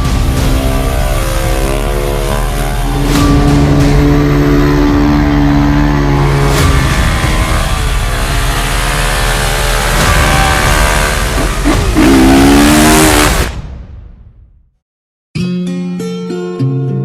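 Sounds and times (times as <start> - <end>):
engine revving hard: 0.0 - 13.5.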